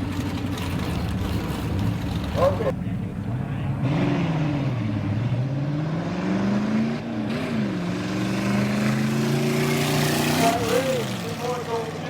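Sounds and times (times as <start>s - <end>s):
drag car engine running: 0.0s - 3.3s.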